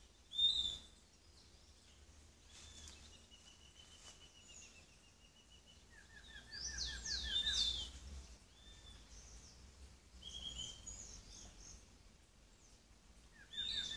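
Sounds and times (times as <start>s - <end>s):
songbirds singing: 0.0s - 13.9s.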